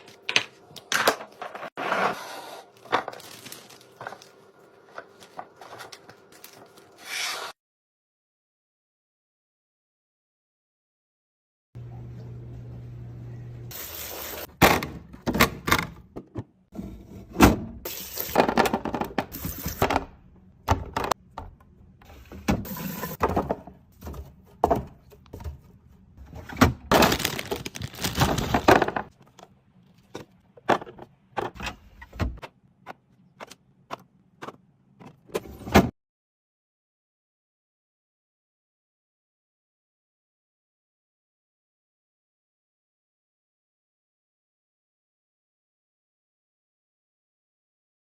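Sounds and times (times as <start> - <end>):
packaging rustling: 2.6 - 7.0, 26.9 - 29.0.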